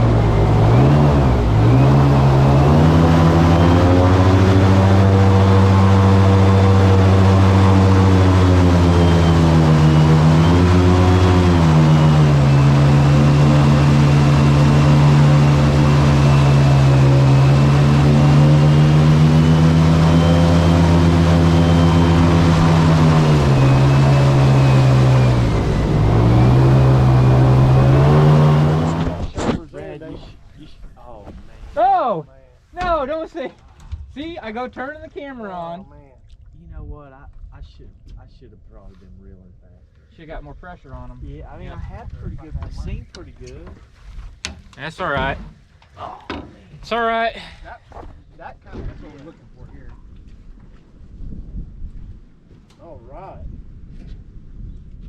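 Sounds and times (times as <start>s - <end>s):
outboard motor running: 0.0s - 31.6s, 41.5s - 50.8s.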